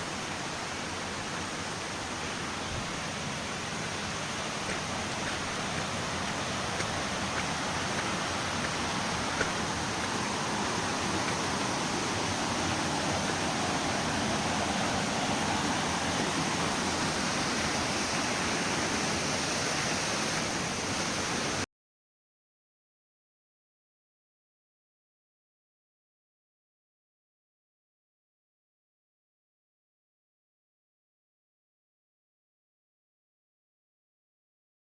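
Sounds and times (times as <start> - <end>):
water rushing and falling: 0.0 - 21.7.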